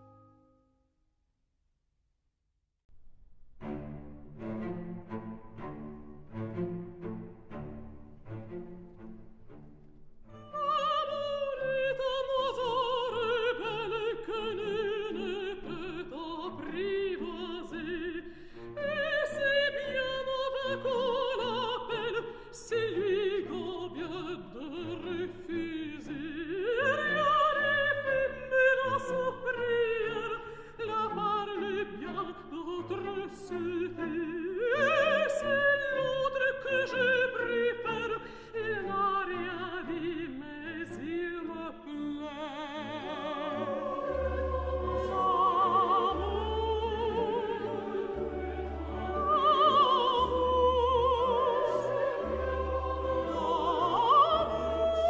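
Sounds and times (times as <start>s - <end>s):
orchestra playing: 3.4s - 10.4s, 42.6s - 55.0s
operatic singing: 10.3s - 55.0s.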